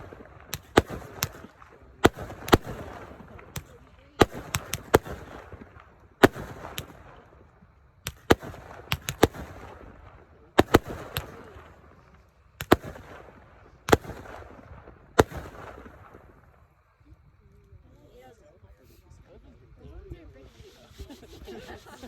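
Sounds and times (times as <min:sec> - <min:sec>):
fireworks bangs crackling: 0:00.0 - 0:16.6.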